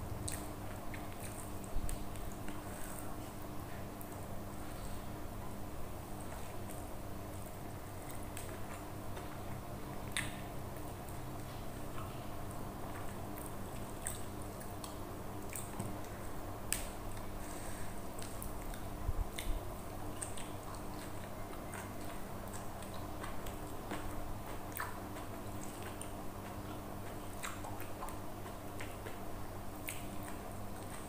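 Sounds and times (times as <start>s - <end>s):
steady low hum: 0.0s - 31.0s
person chewing food: 0.2s - 31.0s
wet mouth clicks and smacks: 10.1s - 10.5s, 29.8s - 31.0s.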